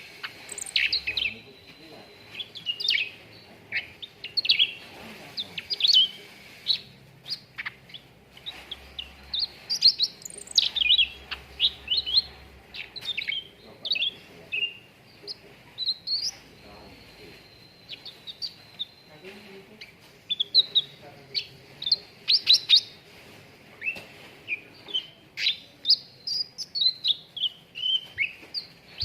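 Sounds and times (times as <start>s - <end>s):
bird chirping and whistling: 0.2s - 3.2s, 9.3s - 13.5s, 25.4s - 29.0s.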